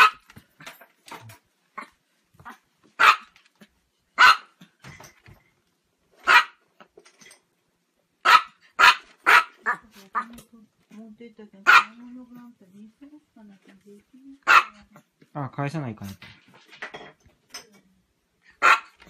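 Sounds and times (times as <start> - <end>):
dog barking: 0.0 - 0.2, 3.0 - 3.3, 4.2 - 4.6, 6.2 - 6.6, 8.2 - 10.3, 11.6 - 12.0, 14.4 - 14.9, 18.6 - 19.0.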